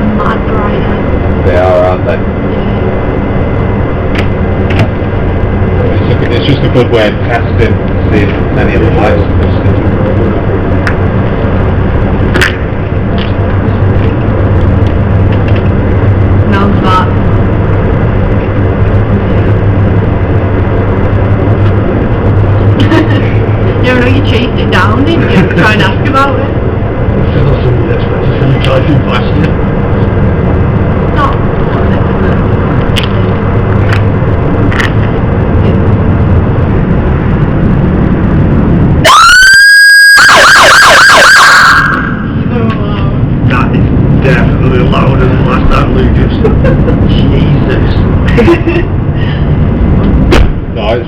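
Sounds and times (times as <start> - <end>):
car engine running: 0.0 - 41.6, 42.2 - 51.0
police siren: 38.9 - 42.5.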